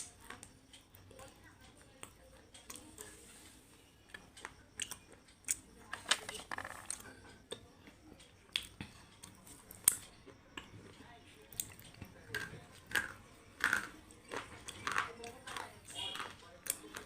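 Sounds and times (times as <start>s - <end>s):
person chewing crunchy food: 4.1s - 5.7s, 8.5s - 17.0s.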